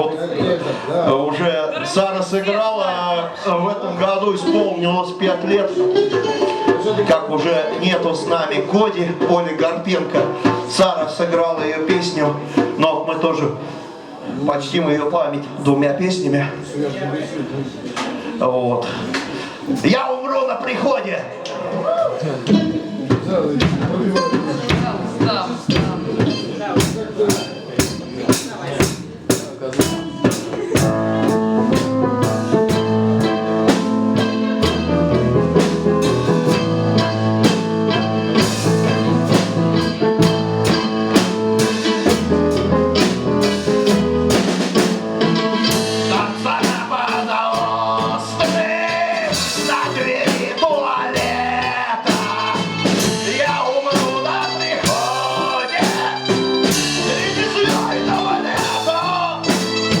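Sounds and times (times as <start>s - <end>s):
live blues-rock band: 4.3s - 12.8s, 22.5s - 60.0s
wavering lead melody: 29.9s - 60.0s.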